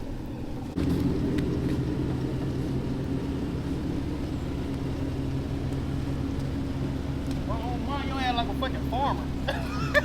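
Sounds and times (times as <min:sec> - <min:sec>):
car engine running steadily: 0:00.0 - 0:10.0.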